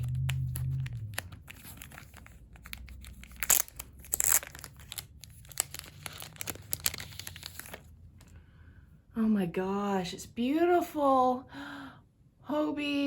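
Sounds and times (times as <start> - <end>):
plastic ripping: 0.0 - 7.9
plastic packaging crackling: 0.0 - 8.3.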